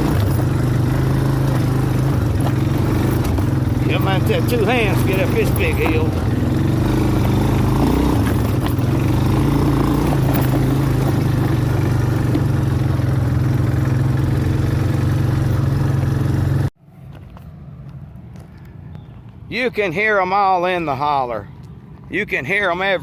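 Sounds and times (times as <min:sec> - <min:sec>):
atv engine running under load: 0:00.0 - 0:16.7.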